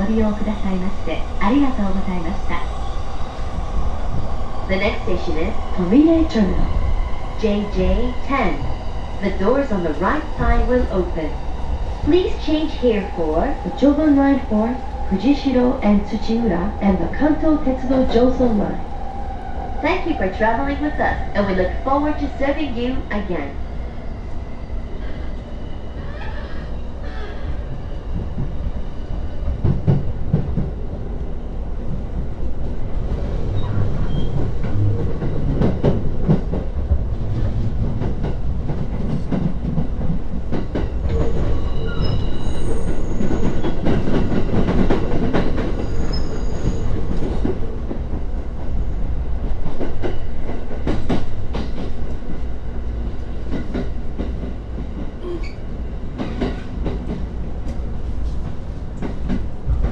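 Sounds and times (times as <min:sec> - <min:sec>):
high wheel squeals: 0:41.2 - 0:43.8, 0:45.8 - 0:47.0.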